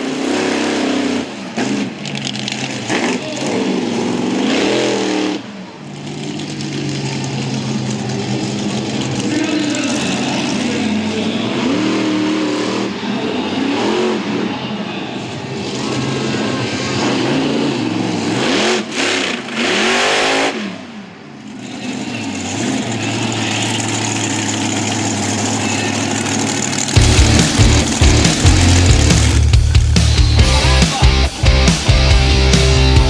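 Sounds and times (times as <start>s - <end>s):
monster truck engines revving: 0.0s - 33.0s
heavy music with pounding beat: 27.0s - 33.0s.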